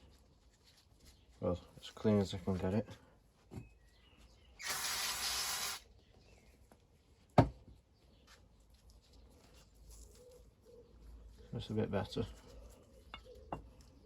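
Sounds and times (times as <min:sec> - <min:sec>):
hissing spray: 0:04.6 - 0:05.8.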